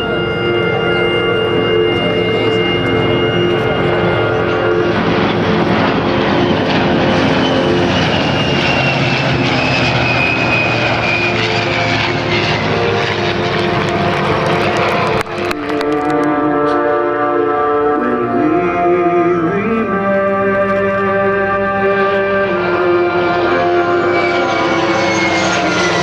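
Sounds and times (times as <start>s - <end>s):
military aircraft flying past: 0.0s - 26.0s.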